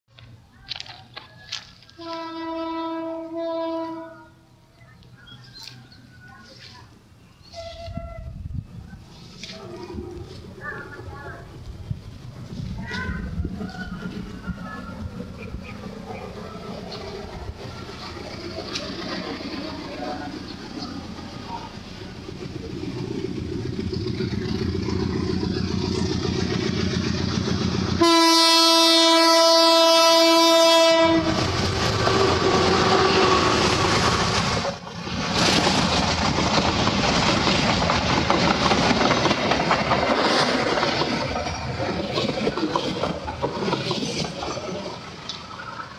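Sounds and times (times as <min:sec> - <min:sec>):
train engine rumble: 0:00.1 - 0:45.9
train horn blast: 0:02.0 - 0:04.5, 0:28.0 - 0:31.5, 0:32.1 - 0:33.7
train wheels clattering over rails: 0:31.3 - 0:45.8.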